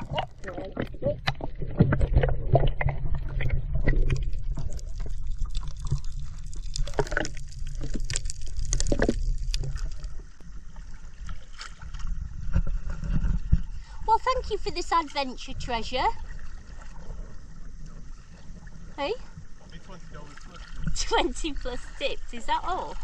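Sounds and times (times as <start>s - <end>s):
water splashing around kayak: 0.0s - 23.0s.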